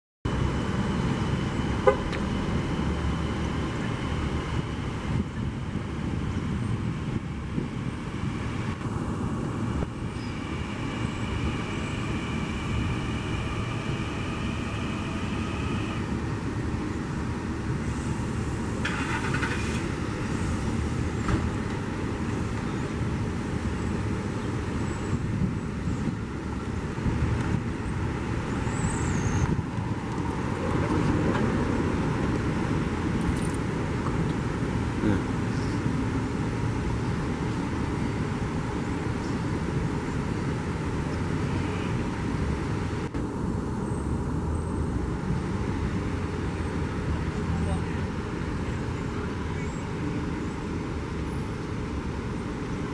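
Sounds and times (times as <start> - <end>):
high whine: 0.3 - 30.7
train rumbling: 0.3 - 52.9.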